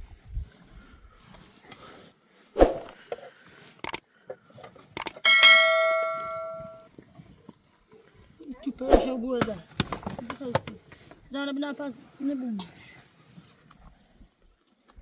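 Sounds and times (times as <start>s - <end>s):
bell-like metallic ring: 5.3s - 6.8s.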